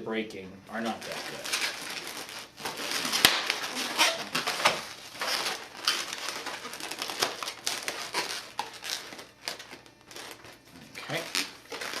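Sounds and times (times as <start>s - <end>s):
balloon rubbing squeaks: 0.8s - 12.0s.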